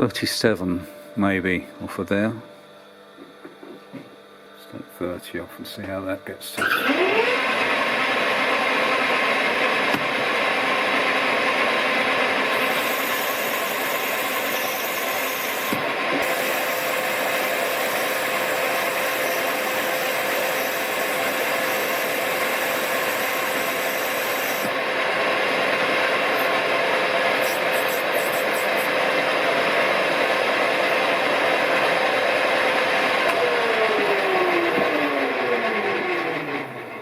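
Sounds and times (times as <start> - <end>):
lathe running: 6.6 - 37.0
high hiss of cutting tool: 12.5 - 24.7, 27.3 - 29.0.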